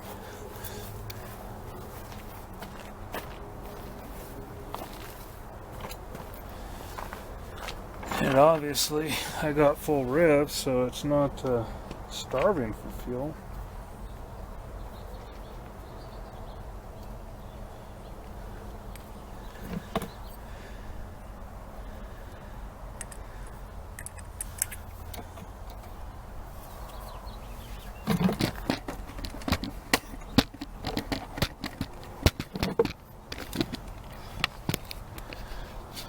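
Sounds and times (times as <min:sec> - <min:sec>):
tools clicking and rattling: 0:28.1 - 0:35.5.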